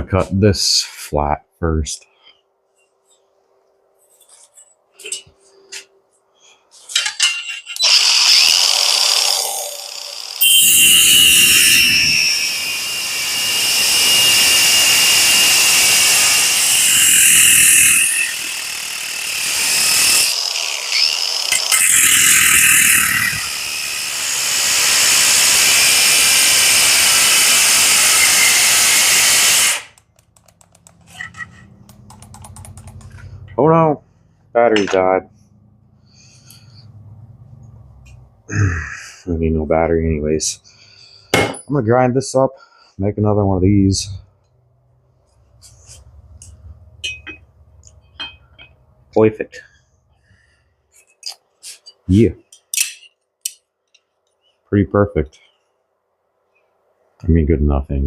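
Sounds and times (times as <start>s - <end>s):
angle grinder cutting metal: 7.7s - 30.0s.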